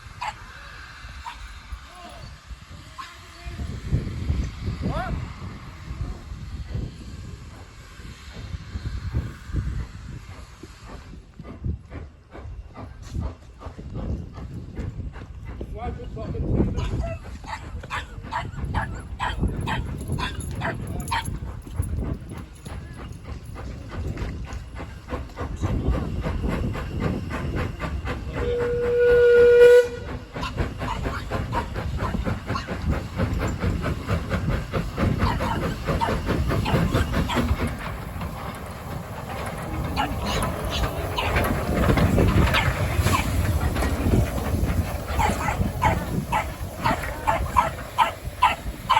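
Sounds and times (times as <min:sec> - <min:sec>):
steam locomotive exhaust beats: 0:00.0 - 0:48.9
steam whistle blast: 0:28.4 - 0:30.2.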